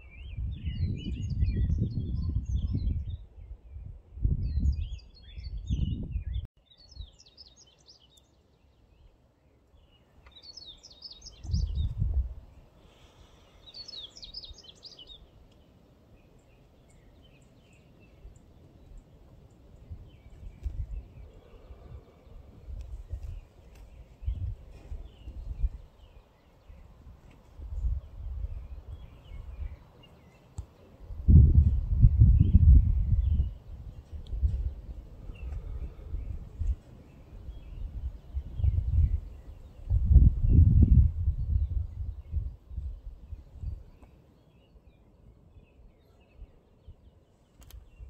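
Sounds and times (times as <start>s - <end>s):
gusty low rumble: 0.0s - 6.5s, 11.4s - 12.6s, 31.1s - 43.9s
songbirds chirping: 0.0s - 48.0s.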